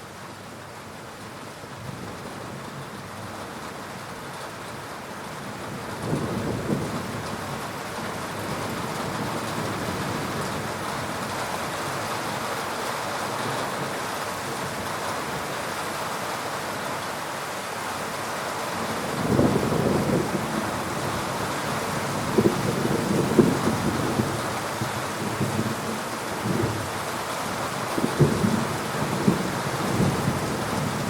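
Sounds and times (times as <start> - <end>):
steady rain falling: 0.0 - 31.0
low thunder rumble: 19.2 - 24.5.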